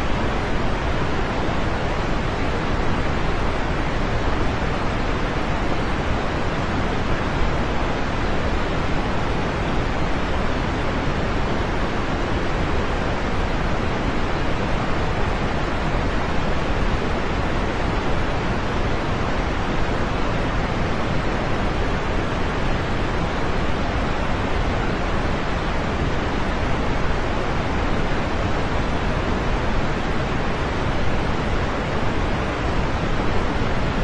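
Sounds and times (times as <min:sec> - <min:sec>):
steady rain hiss: 0:00.0 - 0:34.0.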